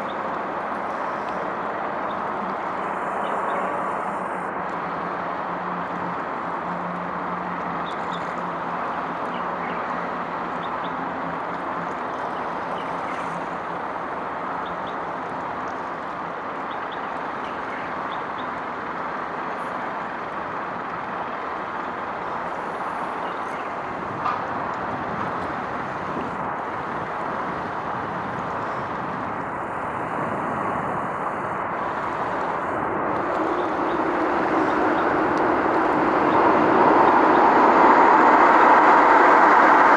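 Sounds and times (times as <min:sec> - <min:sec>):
distant vehicle traffic roar: 0:00.0 - 0:39.9
low hum: 0:28.5 - 0:39.9.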